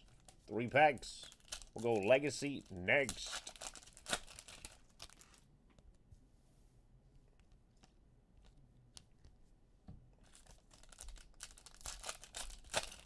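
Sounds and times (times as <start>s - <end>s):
wrapper crinkling and tearing: 0.0s - 5.4s, 10.2s - 13.0s.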